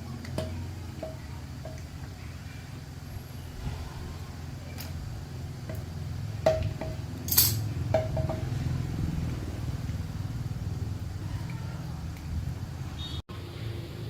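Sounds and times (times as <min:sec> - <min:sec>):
low motor hum: 0:02.8 - 0:14.0
metal clinking against metal: 0:06.5 - 0:08.4.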